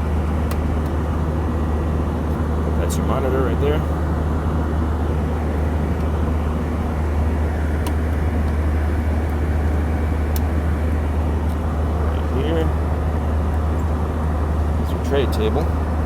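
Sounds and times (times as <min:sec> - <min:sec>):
airliner cabin drone: 0:00.0 - 0:16.0.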